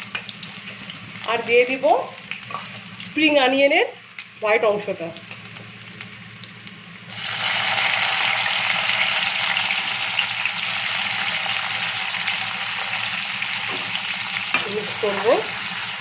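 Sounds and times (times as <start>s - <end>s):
garlic sizzling in hot oil: 0.0s - 16.0s.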